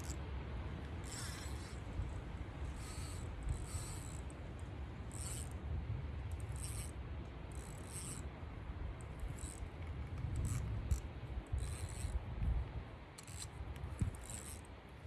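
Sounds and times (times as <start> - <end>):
fishing reel cranking: 0.0 - 0.2, 0.9 - 5.6, 6.3 - 8.3, 9.0 - 12.2, 13.2 - 14.7.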